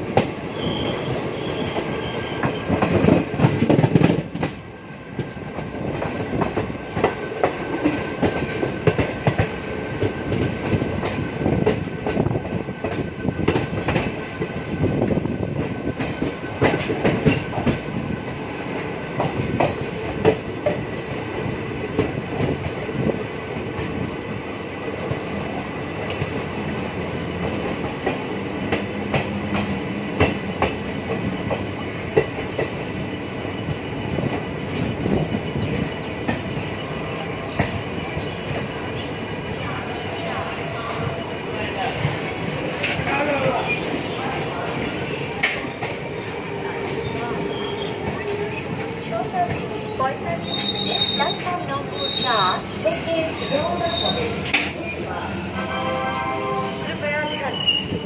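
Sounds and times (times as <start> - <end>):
train wheels clattering over rail joints: 1.6 - 18.4
faint high ring: 55.6 - 56.8.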